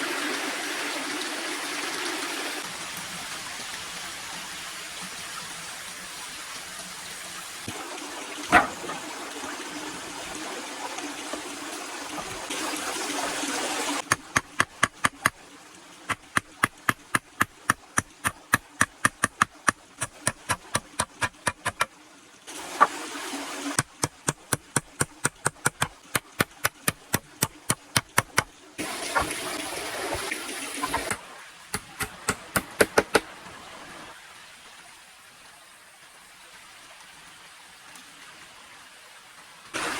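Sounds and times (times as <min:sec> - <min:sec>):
rushing water-like noise: 0:00.0 - 0:39.9
sharp knocks: 0:08.5 - 0:09.0, 0:31.8 - 0:33.2.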